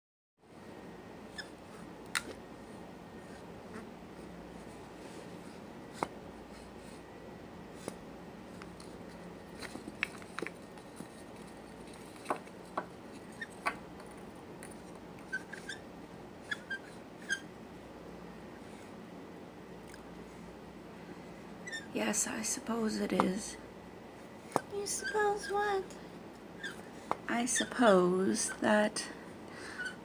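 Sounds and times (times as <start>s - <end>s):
steady background hiss: 0.4s - 30.0s.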